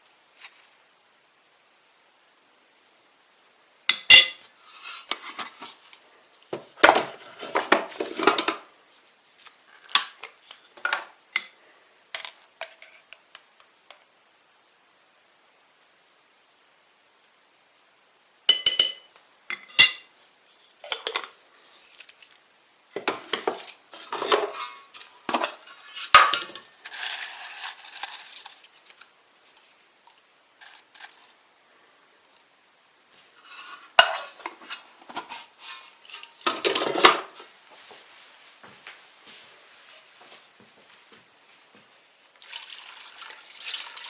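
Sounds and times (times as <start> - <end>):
dishes and cutlery clattering: 18.5 - 20.1, 23.0 - 26.7.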